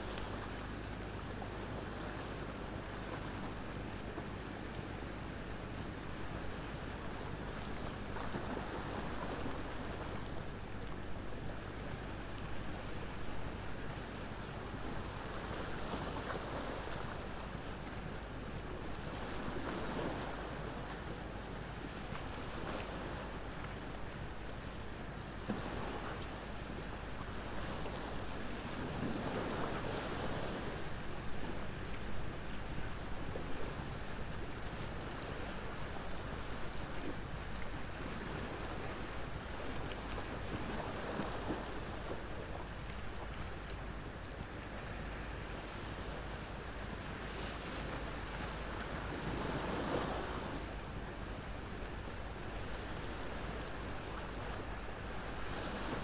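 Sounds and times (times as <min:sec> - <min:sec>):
ocean waves washing ashore: 0:25.5 - 0:56.0.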